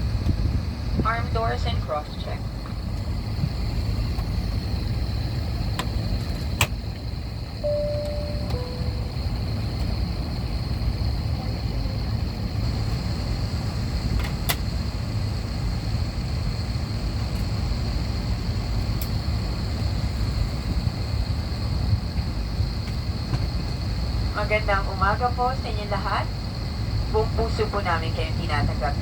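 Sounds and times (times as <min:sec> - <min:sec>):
airplane cabin rumble: 0:00.0 - 0:29.0
faint high whine: 0:07.4 - 0:12.2.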